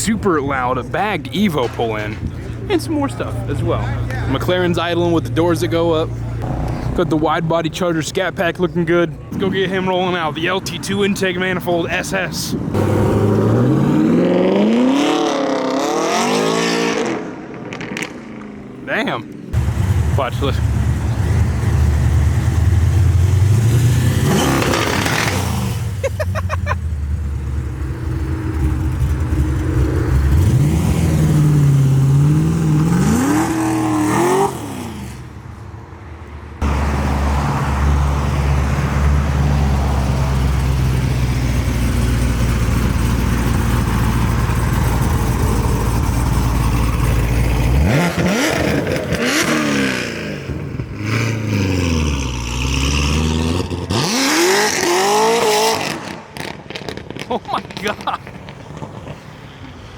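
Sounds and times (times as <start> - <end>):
car engines revving and accelerating: 12.5 - 18.6, 19.5 - 26.1, 26.8 - 35.4, 36.6 - 59.4.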